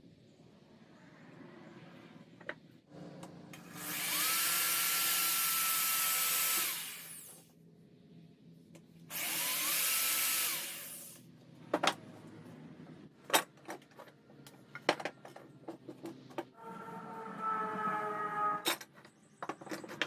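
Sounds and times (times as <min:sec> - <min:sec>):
power tool motor whine: 0:03.6 - 0:07.3.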